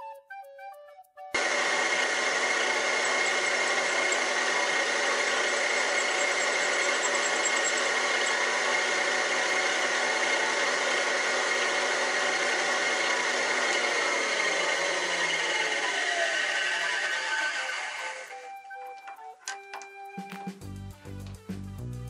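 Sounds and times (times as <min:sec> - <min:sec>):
milling machine humming: 0:01.4 - 0:18.5.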